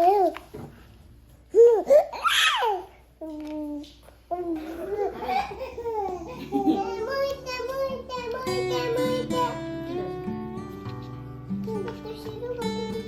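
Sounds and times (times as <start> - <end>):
baby babbling: 0.0 - 0.4, 1.5 - 10.3
acoustic guitar music: 5.0 - 13.0.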